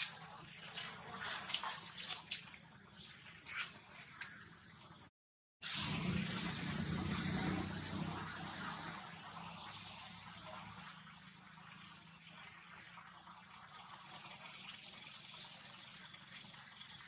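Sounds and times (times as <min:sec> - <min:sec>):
outdoor ambience hiss: 0:05.6 - 0:17.0
low engine hum: 0:05.7 - 0:17.0.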